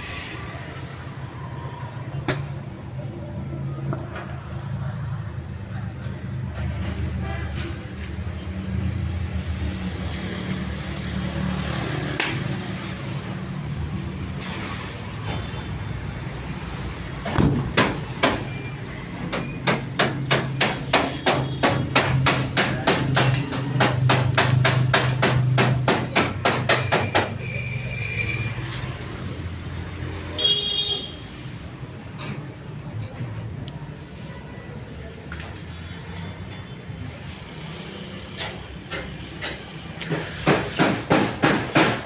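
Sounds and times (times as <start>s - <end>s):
hammer blows: 19.3s - 27.7s.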